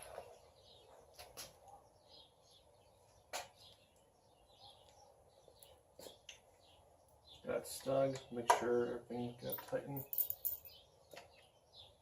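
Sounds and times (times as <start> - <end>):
bird chirps: 0.0 - 8.5.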